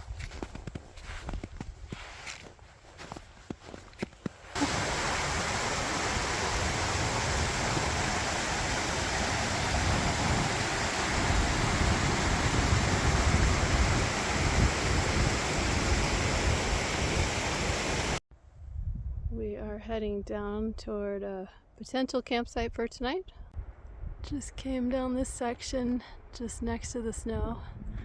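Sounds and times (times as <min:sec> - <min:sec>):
water rushing: 0:04.5 - 0:18.2.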